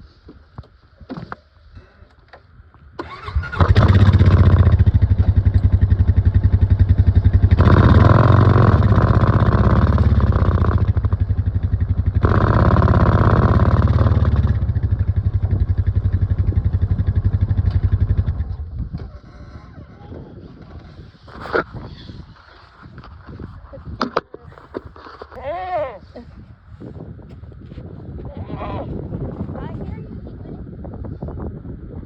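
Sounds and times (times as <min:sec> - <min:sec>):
vehicle engine revving: 0:03.1 - 0:18.7.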